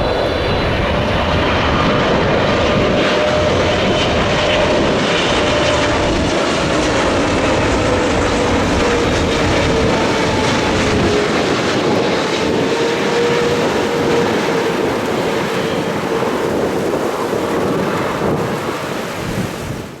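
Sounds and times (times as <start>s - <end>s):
jet airliner engines roaring: 0.0s - 20.0s.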